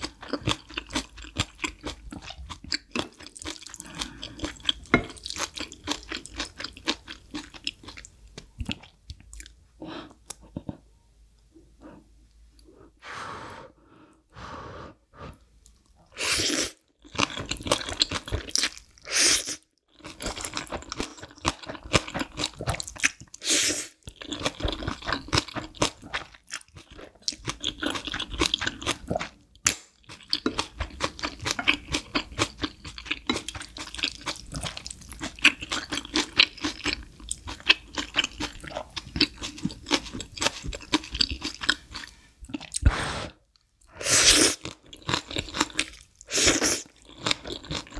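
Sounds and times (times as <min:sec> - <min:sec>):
wet chewing of noodles: 0:00.0 - 0:10.8, 0:15.6 - 0:47.9.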